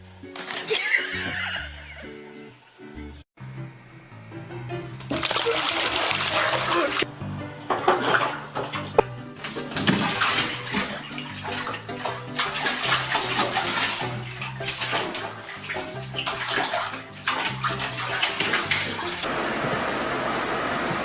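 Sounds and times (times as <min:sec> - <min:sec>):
background music: 0:00.0 - 0:19.3
running and splashing water: 0:05.0 - 0:07.1, 0:08.0 - 0:19.4.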